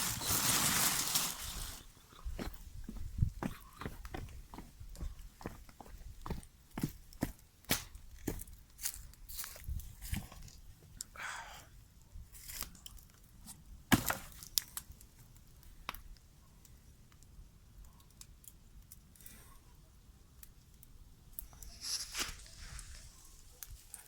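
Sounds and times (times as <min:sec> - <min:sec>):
tearing rustles: 0:00.0 - 0:01.9, 0:21.6 - 0:23.6.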